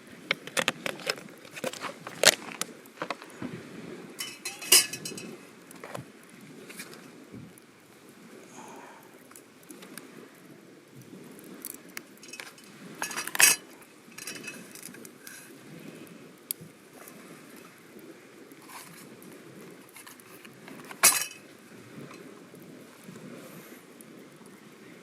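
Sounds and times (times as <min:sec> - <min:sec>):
cooking gear clinking: 0:04.2 - 0:05.4, 0:12.2 - 0:15.0, 0:20.7 - 0:21.5.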